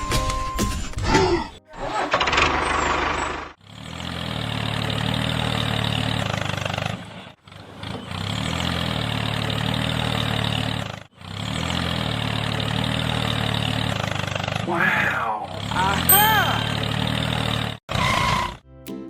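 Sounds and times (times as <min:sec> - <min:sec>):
engine idling: 0:01.7 - 0:14.5.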